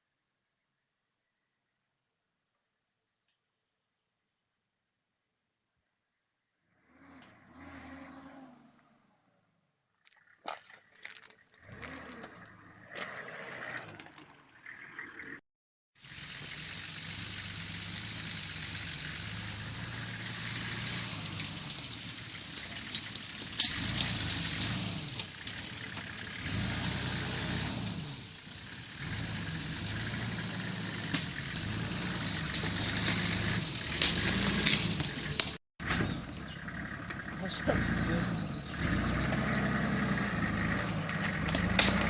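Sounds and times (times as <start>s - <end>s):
engine pulling at low speed: 6.7s - 9.4s, 10.2s - 15.4s, 16.0s - 42.0s
knocks and clatter of stones: 10.0s - 12.4s, 32.2s - 36.5s.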